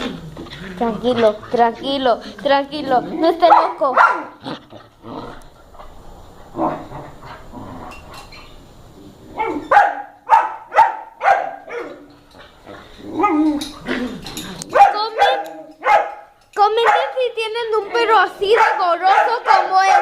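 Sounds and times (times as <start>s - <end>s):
dog barking: 3.4s - 4.4s, 9.4s - 12.0s, 14.7s - 17.2s, 18.5s - 20.0s.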